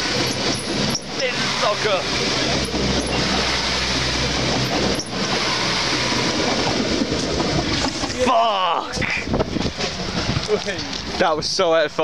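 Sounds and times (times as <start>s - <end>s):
train passing at speed: 0.0s - 7.9s.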